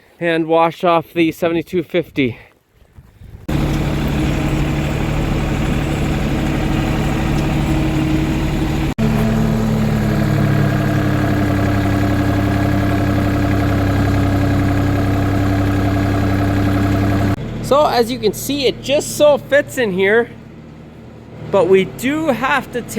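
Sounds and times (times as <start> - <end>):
engine running: 3.5 - 22.9.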